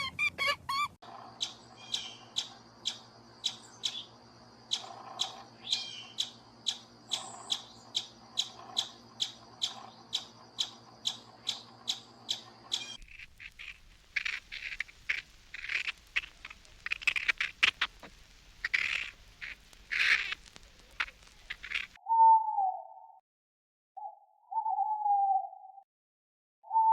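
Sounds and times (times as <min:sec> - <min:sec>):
rapid sharp animal calls: 0:00.0 - 0:04.0, 0:04.7 - 0:22.0
harsh irregular animal calls: 0:00.0 - 0:22.0.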